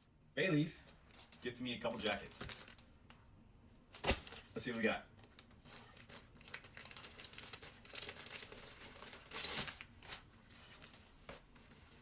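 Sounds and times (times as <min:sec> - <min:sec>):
packaging crinkling: 0:02.0 - 0:02.9, 0:05.2 - 0:12.0
packaging tearing: 0:05.2 - 0:10.2.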